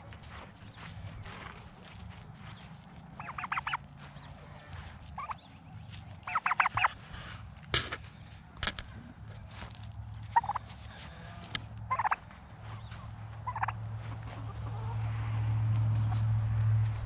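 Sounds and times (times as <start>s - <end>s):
turkeys gobbling: 0.1s - 8.0s, 10.2s - 10.8s, 11.5s - 15.2s.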